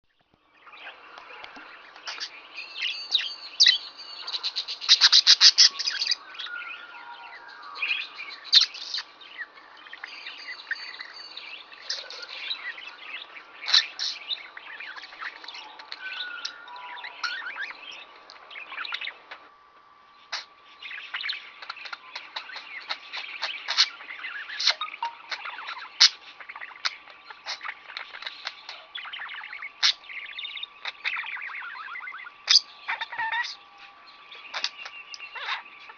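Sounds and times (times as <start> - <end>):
faint steady tone: 0.4 - 35.9
budgerigar chattering: 21.1 - 33.6, 34.5 - 35.9.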